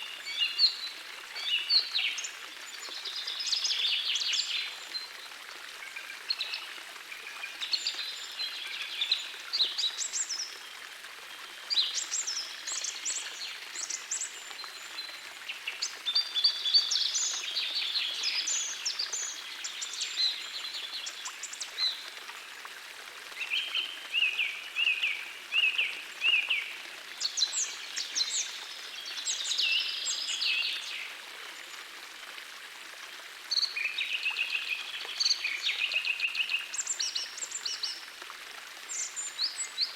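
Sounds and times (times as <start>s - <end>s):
forest stream rushing: 0.0s - 39.9s
songbirds singing: 11.7s - 22.1s, 23.4s - 31.8s.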